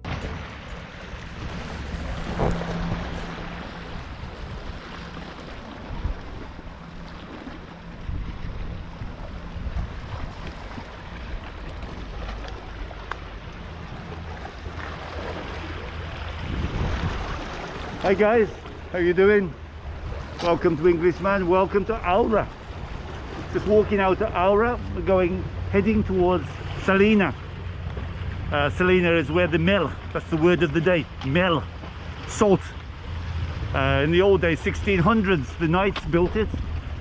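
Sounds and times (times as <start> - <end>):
wind noise on microphone: 0.0 - 6.6, 7.4 - 18.1, 35.8 - 37.0.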